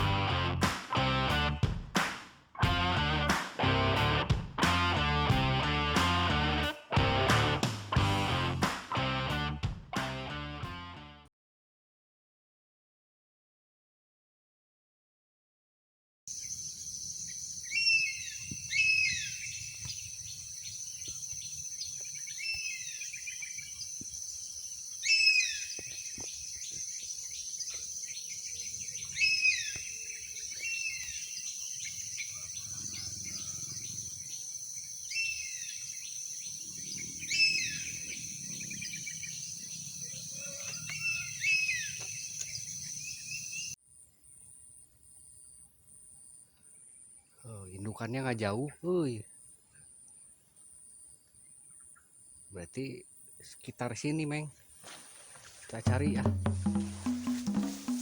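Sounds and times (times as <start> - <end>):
songbird chirping: 16.3 - 58.0.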